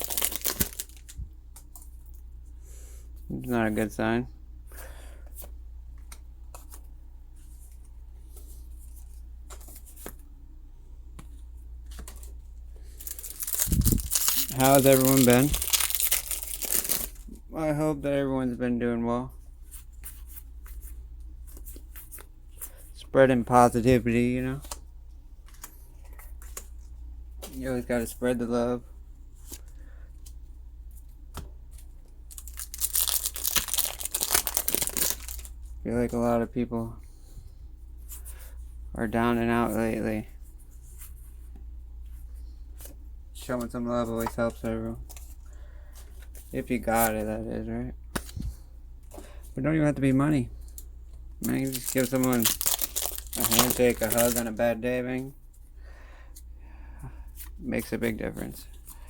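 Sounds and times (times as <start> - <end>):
foil wrapper crinkling and tearing: 0.0 - 1.2, 12.9 - 17.2, 32.3 - 35.5, 51.4 - 54.6
steady low hum: 0.0 - 59.0.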